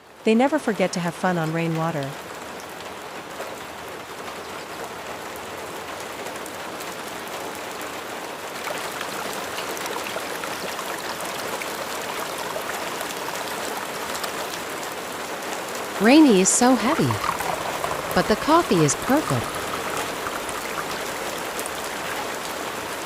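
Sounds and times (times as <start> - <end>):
rain falling: 1.4 - 23.0
raindrops ticking: 16.0 - 23.0.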